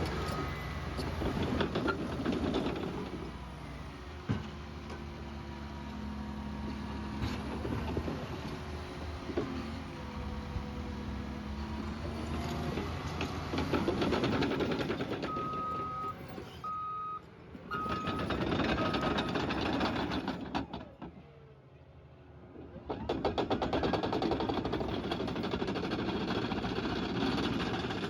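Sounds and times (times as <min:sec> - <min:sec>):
bulldozer engine running: 0:00.0 - 0:21.6, 0:22.4 - 0:28.0
reversing alarm beeping: 0:15.2 - 0:18.2.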